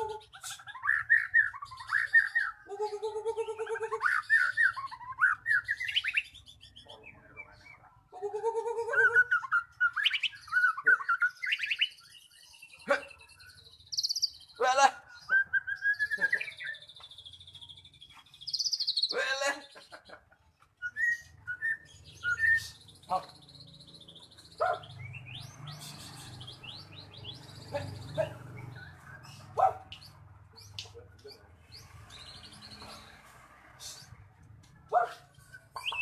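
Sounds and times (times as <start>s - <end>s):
songbird whistling song: 0.0s - 2.7s, 3.4s - 7.9s, 8.8s - 19.2s, 20.8s - 31.4s, 35.4s - 36.0s.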